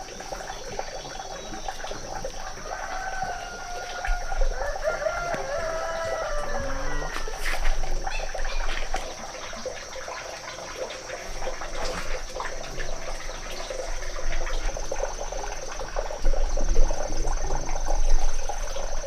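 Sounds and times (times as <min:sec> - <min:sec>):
water running and splashing: 0:00.0 - 0:19.0.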